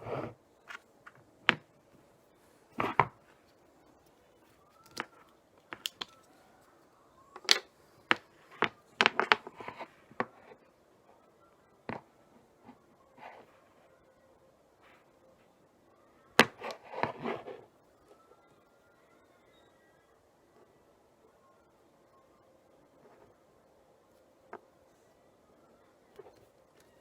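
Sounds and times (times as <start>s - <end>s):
hard objects clicking and knocking: 4.8s - 6.4s, 7.3s - 10.4s.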